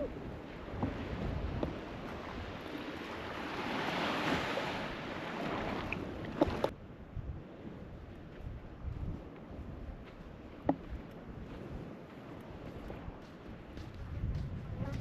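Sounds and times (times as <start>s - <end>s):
ocean surf rushing: 0.0s - 6.7s
wind on microphone: 0.0s - 15.0s.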